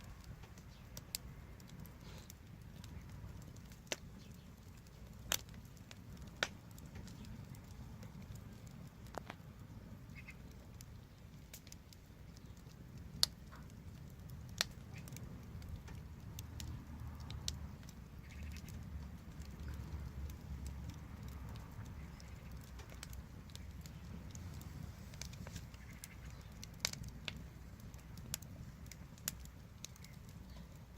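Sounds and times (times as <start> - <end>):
wood fire crackling: 0.0 - 30.9
low rumble: 15.2 - 29.5.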